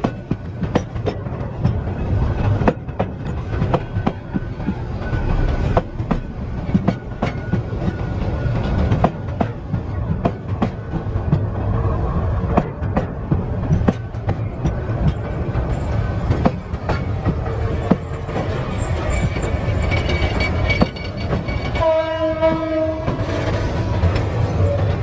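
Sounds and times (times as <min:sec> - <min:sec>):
train rumbling past: 0:00.0 - 0:25.0
wheels clacking over rail joints: 0:00.0 - 0:25.0
train horn blast: 0:21.8 - 0:23.3.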